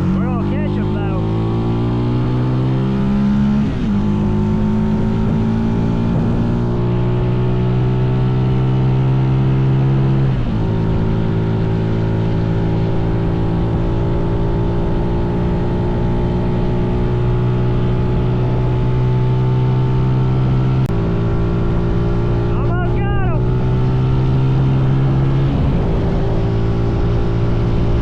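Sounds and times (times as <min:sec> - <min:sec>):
wind rumble on microphone: 0:23.4 - 0:28.0.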